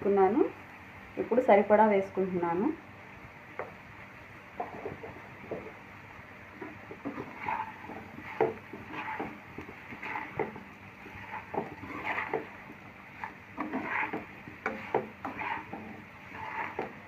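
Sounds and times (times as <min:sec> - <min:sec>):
spoon scraping a frying pan: 0:06.5 - 0:17.0.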